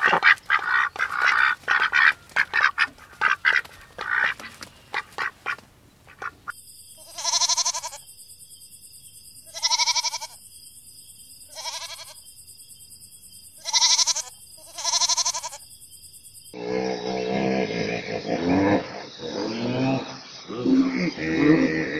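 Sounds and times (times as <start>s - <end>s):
livestock bleating: 7.0s - 8.1s, 9.5s - 10.4s, 11.5s - 12.2s, 13.6s - 15.6s.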